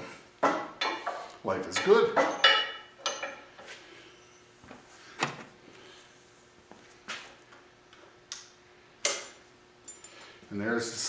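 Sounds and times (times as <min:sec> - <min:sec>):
metal tools knocking and clinking: 0:00.4 - 0:03.5.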